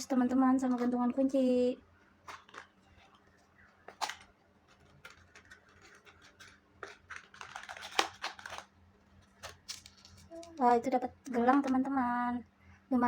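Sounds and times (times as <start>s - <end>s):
paper box rustling: 2.2s - 10.6s.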